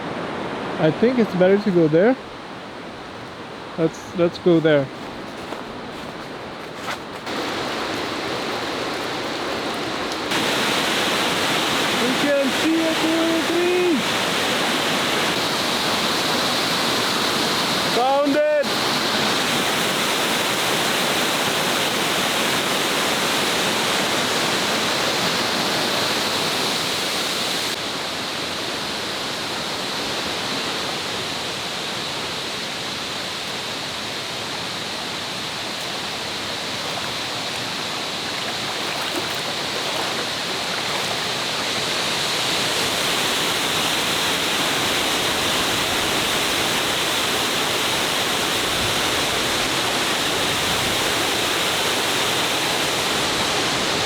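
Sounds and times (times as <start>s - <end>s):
waterfall pouring: 7.3s - 24.8s.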